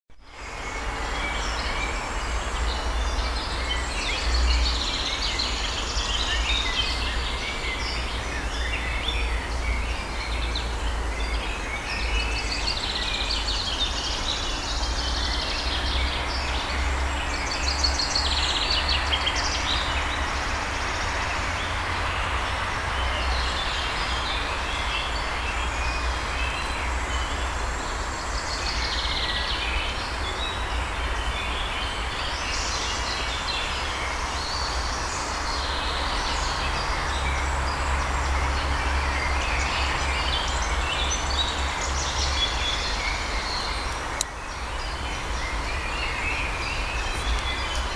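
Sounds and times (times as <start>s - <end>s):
birds chirping and trilling: 0.3s - 47.9s.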